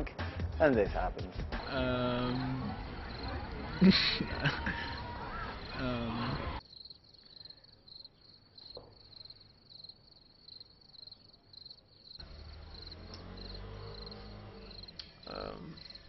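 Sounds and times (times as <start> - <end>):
crickets chirping: 1.6 - 16.0.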